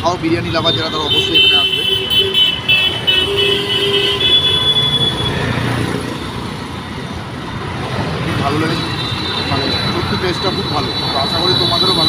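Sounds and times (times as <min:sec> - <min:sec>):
rumble of passing vehicles: 0:00.0 - 0:12.0
vehicle horn: 0:00.8 - 0:05.4.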